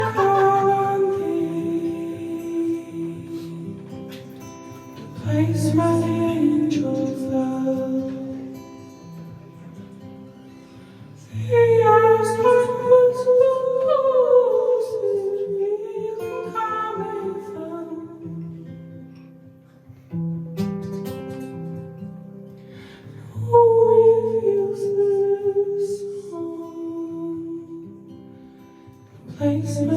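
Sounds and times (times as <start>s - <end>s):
person singing: 0.0s - 4.3s, 4.9s - 9.2s, 11.2s - 18.5s, 23.2s - 28.1s, 29.2s - 29.9s
live band with guitar: 0.0s - 29.9s.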